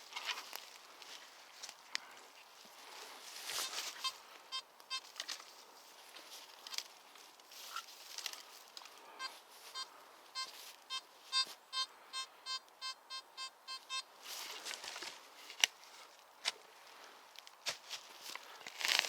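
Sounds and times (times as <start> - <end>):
rustling: 0.0 - 11.5, 14.2 - 19.0
metal detector beeping: 3.6 - 5.2, 9.1 - 14.1.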